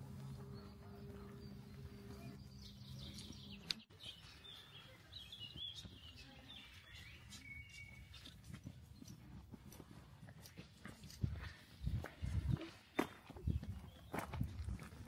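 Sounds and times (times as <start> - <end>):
faint birds chirping: 0.0 - 9.8.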